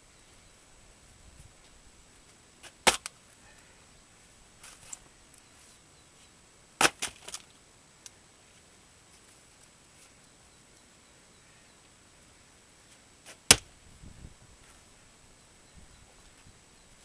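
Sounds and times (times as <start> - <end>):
axe chopping wood: 2.6 - 3.1, 6.8 - 7.4, 13.5 - 13.7.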